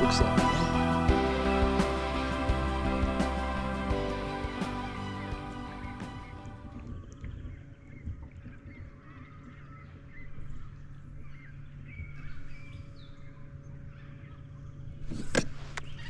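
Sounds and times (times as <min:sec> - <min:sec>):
bird calls: 0:06.9 - 0:15.0.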